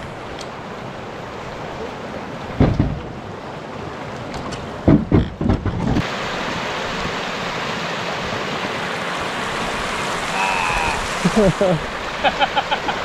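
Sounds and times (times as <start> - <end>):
creek water flowing: 0.0 - 4.9, 6.0 - 13.0
low knocks: 2.5 - 3.2, 4.8 - 6.0.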